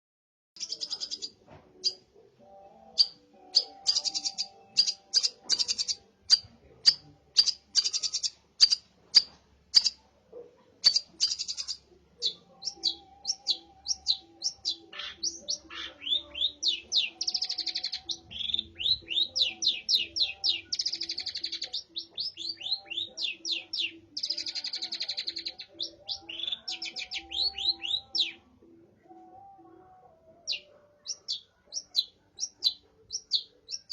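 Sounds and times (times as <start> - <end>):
bird singing sharp chirps: 3.0 - 9.9.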